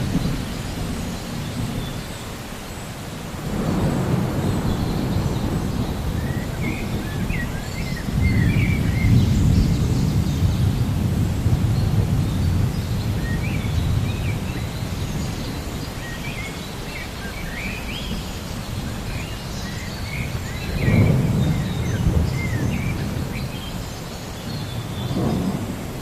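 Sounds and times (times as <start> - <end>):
birds chirping: 0.0 - 26.0
rain hissing: 0.0 - 26.0
rolling thunder: 3.4 - 16.0, 18.1 - 26.0.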